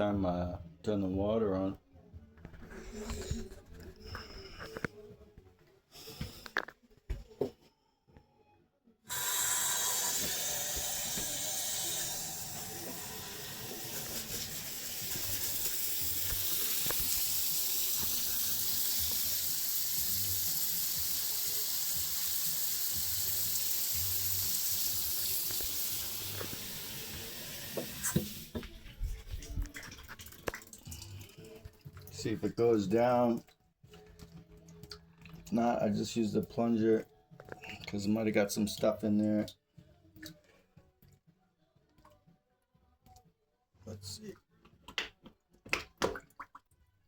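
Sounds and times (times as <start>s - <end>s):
shower water running onto tiles: 9.1s - 31.5s.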